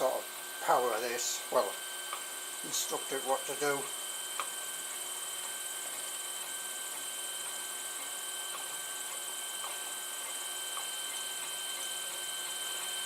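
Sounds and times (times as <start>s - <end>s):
electrical hum and hiss: 0.0s - 13.0s
high-pitched whine: 0.0s - 13.0s.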